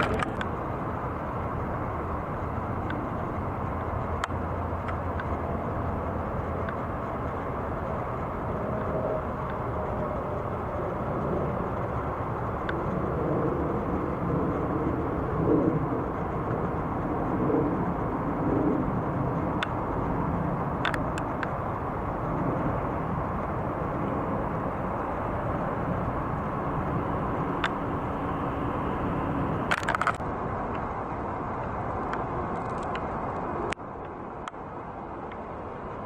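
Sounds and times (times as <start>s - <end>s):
sharp clicks: 0.0s - 0.6s, 20.7s - 21.6s, 29.6s - 30.2s
distant engines rumbling: 0.0s - 36.0s.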